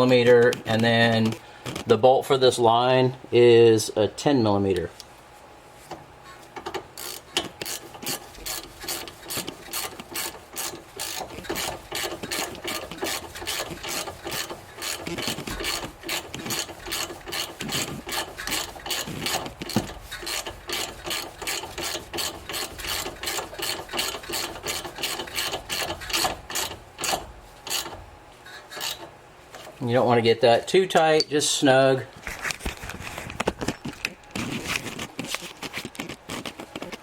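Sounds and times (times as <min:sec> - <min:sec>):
hand ratchet clicking: 0:06.7 - 0:28.0, 0:28.7 - 0:29.1.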